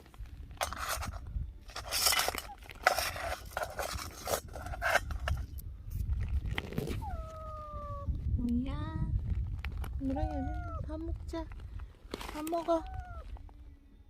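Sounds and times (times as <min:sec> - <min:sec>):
food dish scraping and clinking: 0:00.6 - 0:05.5.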